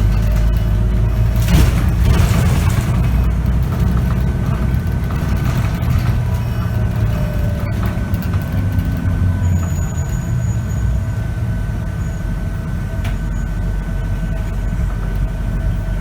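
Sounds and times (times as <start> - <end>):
high-pitched gearbox whine: 0.0 - 12.3
bus diesel engine rumble: 0.0 - 16.0.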